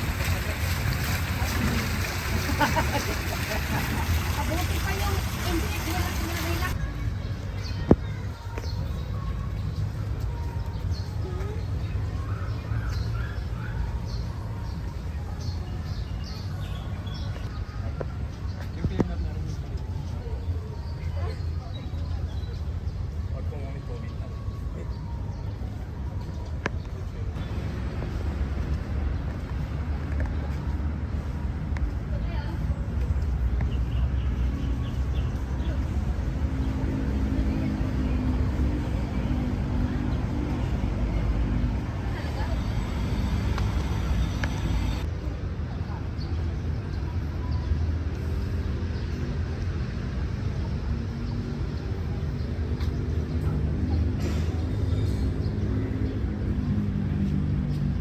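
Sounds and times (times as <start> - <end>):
people talking: 0.0 - 13.0, 29.5 - 34.0, 34.6 - 48.5
road traffic noise: 0.0 - 58.0
steady low city rumble: 0.0 - 58.0
vehicle engine humming: 32.3 - 45.1.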